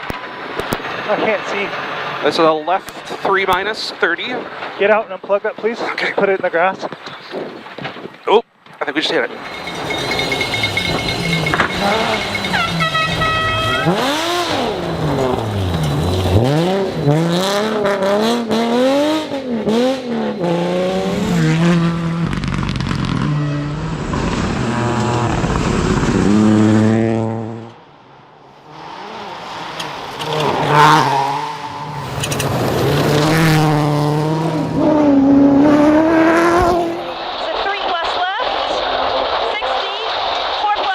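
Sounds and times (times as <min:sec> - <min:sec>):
rally car engine revving: 0:09.3 - 0:27.9, 0:28.5 - 0:37.2.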